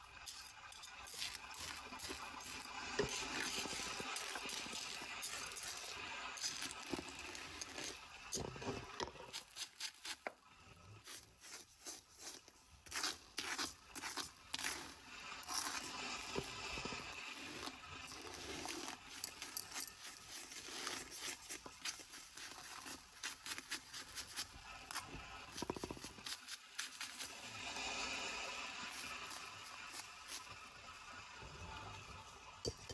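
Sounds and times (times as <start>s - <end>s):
litter rustling and crinkling: 0.2s - 10.2s, 11.0s - 27.3s.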